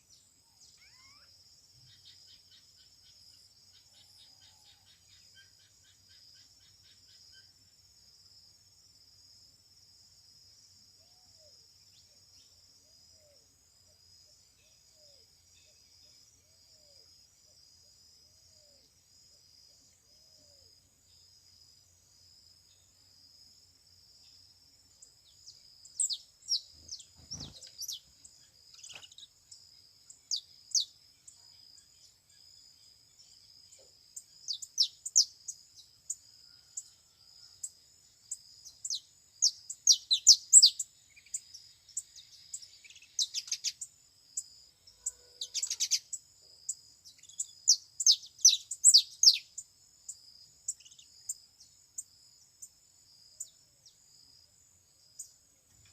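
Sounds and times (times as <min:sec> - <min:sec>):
canaries chirping: 0:27.2 - 0:28.0.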